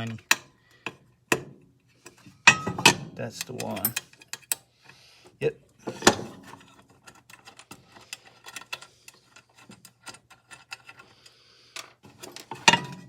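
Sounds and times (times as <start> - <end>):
allen key clicking on screws: 3.3 - 4.6, 6.6 - 11.1.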